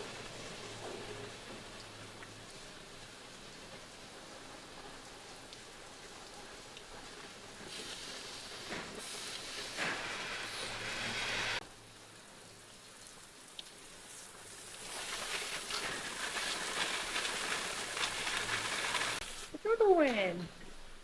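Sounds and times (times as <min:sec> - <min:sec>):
rushing hiss: 0:07.6 - 0:11.6, 0:13.9 - 0:19.6.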